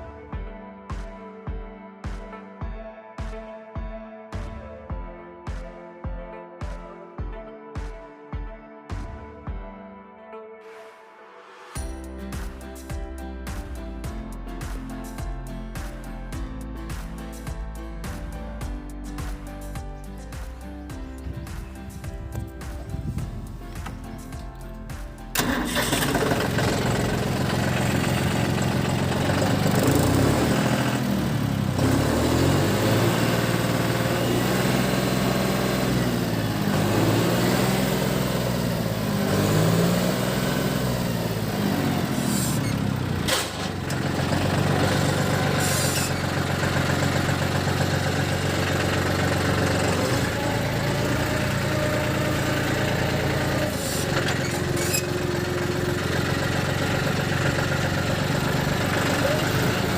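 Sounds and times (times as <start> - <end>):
tractor diesel engine running: 20.5 - 59.9.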